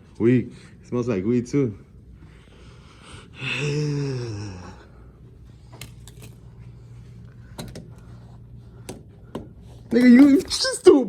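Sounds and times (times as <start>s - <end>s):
man sighing: 3.4s - 4.9s.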